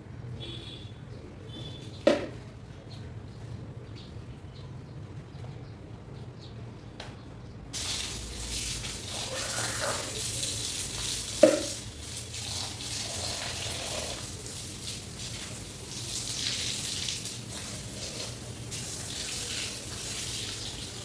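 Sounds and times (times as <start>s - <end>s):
tap water splashing on hair: 7.8s - 21.0s.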